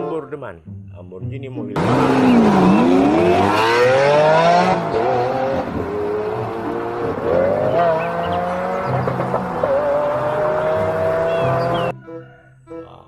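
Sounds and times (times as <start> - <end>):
sports car engine revving: 1.8 - 11.9.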